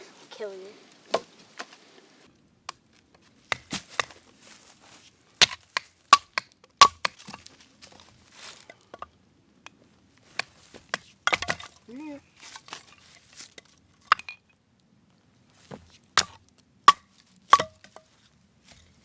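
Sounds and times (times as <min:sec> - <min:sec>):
axe chopping wood: 0:01.1 - 0:01.3, 0:03.5 - 0:04.3, 0:05.4 - 0:09.1, 0:10.3 - 0:11.8, 0:15.7 - 0:18.0.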